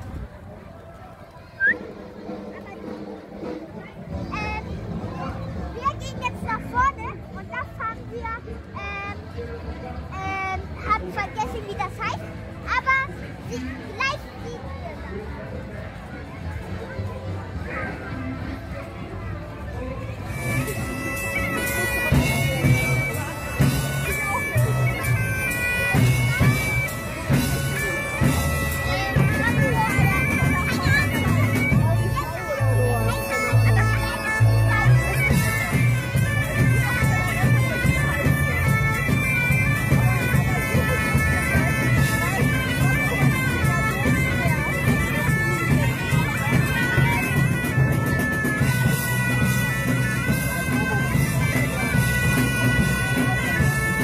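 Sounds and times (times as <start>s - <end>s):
bagpipe music: 16.6s - 54.0s.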